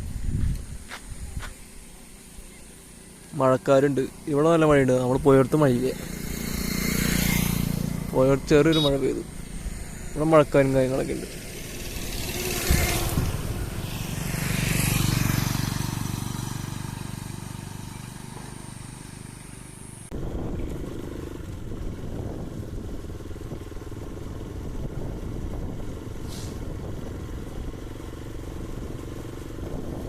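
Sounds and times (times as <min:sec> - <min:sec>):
motorcycle engine running: 0:00.0 - 0:30.0
wind and road noise: 0:00.0 - 0:30.0
brief hiss: 0:26.2 - 0:26.7.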